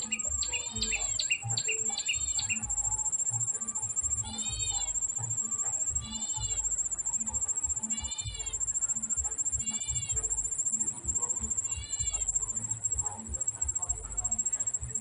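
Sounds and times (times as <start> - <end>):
bird mewing call: 0.0 - 3.3, 4.1 - 5.2, 5.8 - 13.0
insect trill: 0.0 - 15.0.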